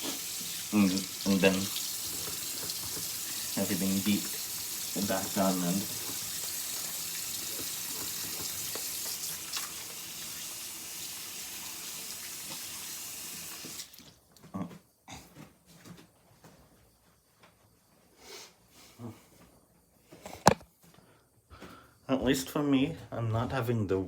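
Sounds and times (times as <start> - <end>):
tap running into a sink: 0.0 - 10.4, 11.9 - 14.0.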